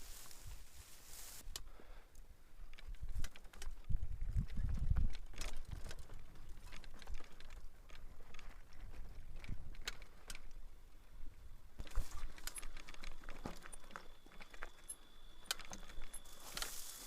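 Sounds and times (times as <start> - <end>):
mountain bike rattling over rock: 2.7 - 10.8, 11.8 - 17.0.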